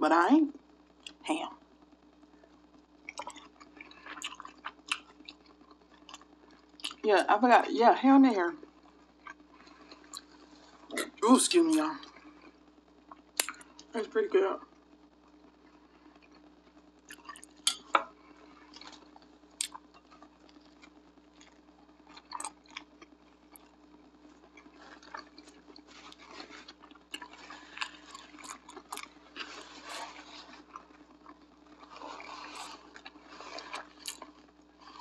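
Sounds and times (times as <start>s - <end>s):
person chewing food: 3.1s - 7.0s, 8.8s - 11.1s, 13.1s - 13.9s, 15.7s - 35.0s
mouth clicks: 13.4s - 13.6s.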